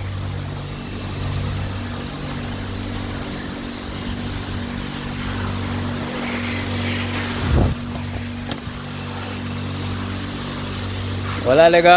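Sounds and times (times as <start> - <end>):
even hiss: 0.0 - 11.9
steady mechanical hum: 0.0 - 11.9.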